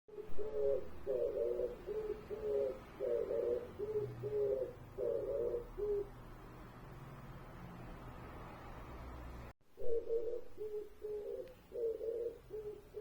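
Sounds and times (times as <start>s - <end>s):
bird hooting: 0.1s - 6.2s, 9.8s - 13.0s.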